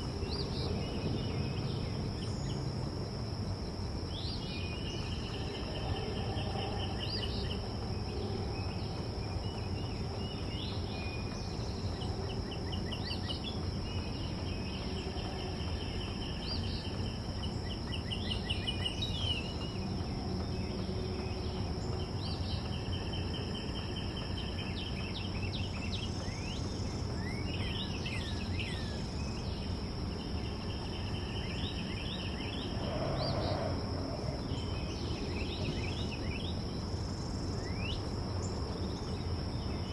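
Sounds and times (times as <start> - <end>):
trilled bird songs: 0.0 - 39.9
low rumble: 32.2 - 36.2.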